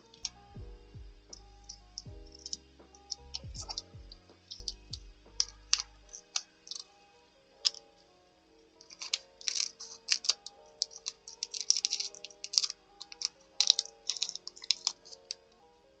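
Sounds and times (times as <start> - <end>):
soft background music: 0.0 - 16.0
paper clicks and rustles: 8.8 - 15.4.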